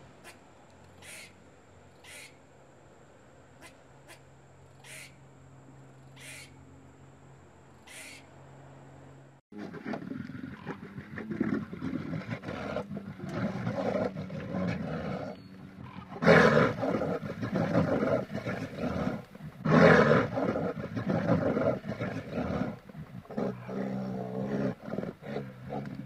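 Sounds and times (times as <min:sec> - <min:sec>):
bear growling: 0:09.6 - 0:26.0
bear roaring: 0:09.6 - 0:26.0.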